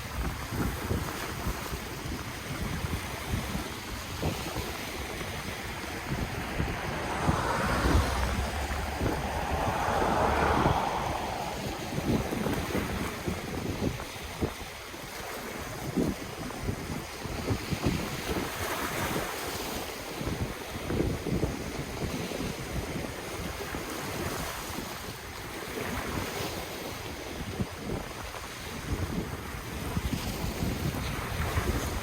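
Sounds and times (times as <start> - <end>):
wind buffeting microphone: 0.0 - 24.6
ocean waves washing: 2.0 - 14.4.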